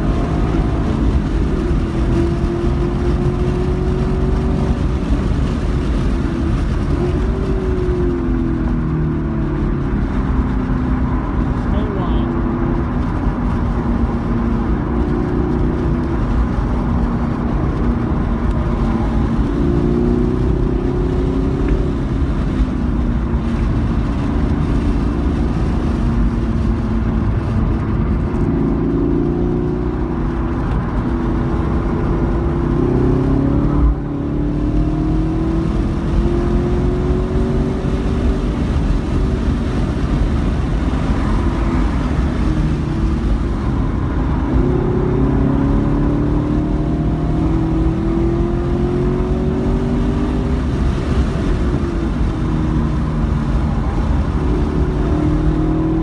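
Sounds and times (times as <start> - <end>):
car engine revving in cabin: 0.0 - 56.0
tyre and road noise: 0.0 - 56.0.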